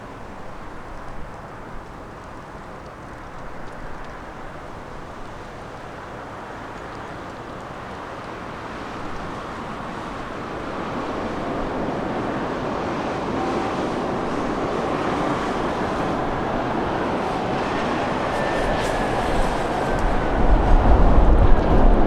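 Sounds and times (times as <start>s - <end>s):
wind buffeting microphone: 8.6s - 22.0s
jet engines roaring: 10.2s - 22.0s.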